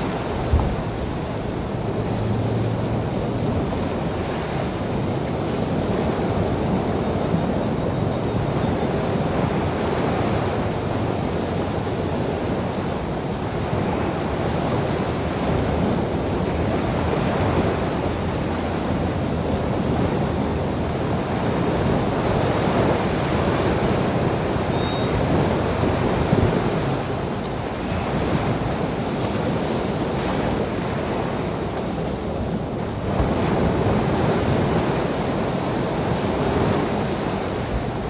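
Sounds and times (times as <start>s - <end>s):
ocean waves breaking on shore: 0.0s - 38.0s
wind: 0.0s - 38.0s.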